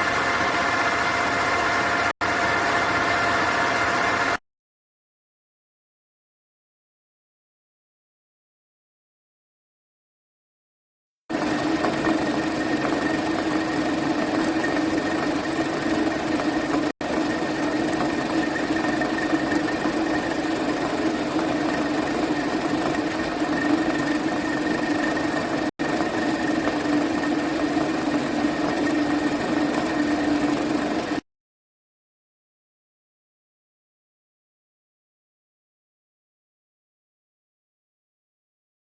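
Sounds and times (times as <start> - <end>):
milling machine hum and whine: 0.0 - 4.4, 11.3 - 31.2.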